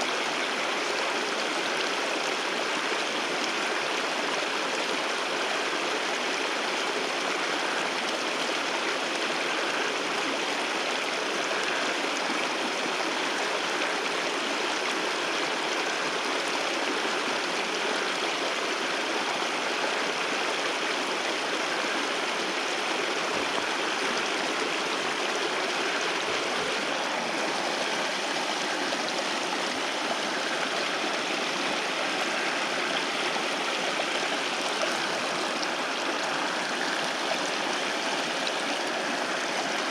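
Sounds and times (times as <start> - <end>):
waterfall rushing: 21.1 - 39.9.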